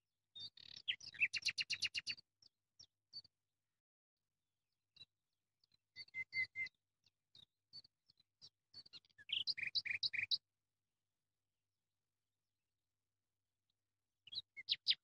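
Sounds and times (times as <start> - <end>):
small bird chirping: 0.3 - 3.3, 5.0 - 10.4, 14.2 - 15.0.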